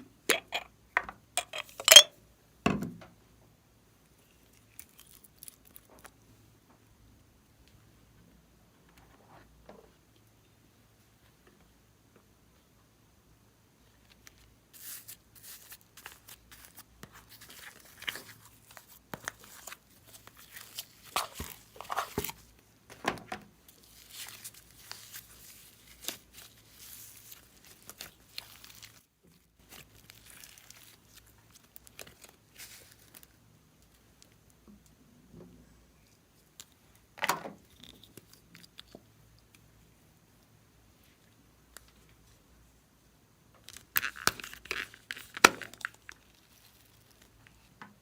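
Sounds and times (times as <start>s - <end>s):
plastic crinkling and tearing: 4.4s - 6.1s, 14.1s - 22.5s, 23.7s - 33.4s, 43.6s - 47.7s.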